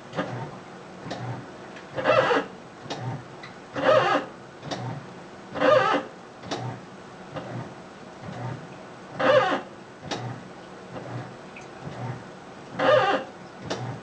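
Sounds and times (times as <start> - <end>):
washing machine squealing: 2.0 - 3.1, 3.8 - 4.9, 5.6 - 6.1, 9.2 - 10.3, 11.8 - 14.0.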